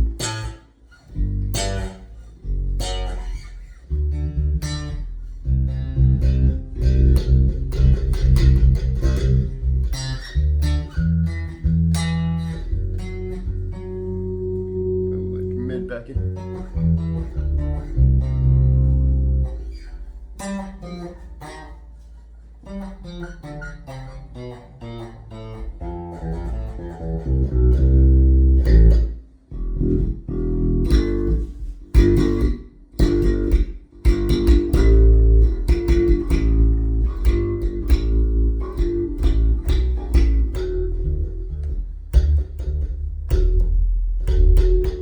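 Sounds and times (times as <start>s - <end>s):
electric bass guitar playing: 0.0s - 45.0s.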